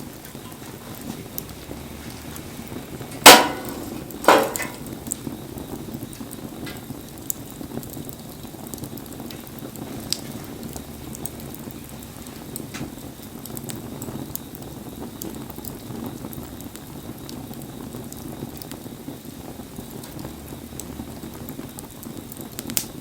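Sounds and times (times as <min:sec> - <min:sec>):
bonfire crackling: 0:00.0 - 0:23.0
fire popping: 0:00.0 - 0:23.0
rain: 0:00.0 - 0:23.0
loud sharp knocks: 0:03.2 - 0:04.8.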